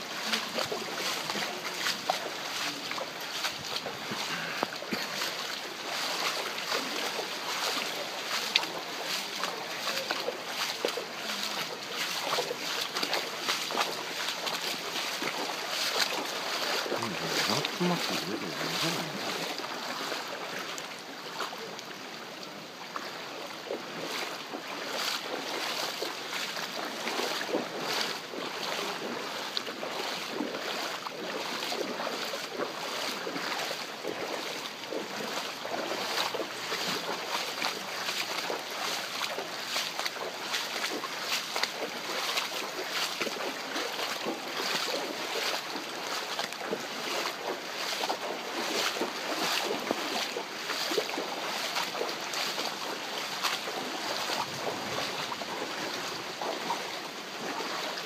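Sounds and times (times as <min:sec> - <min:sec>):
moving floodwater: 0:00.0 - 0:58.0
heavy rain hissing: 0:16.9 - 0:19.8.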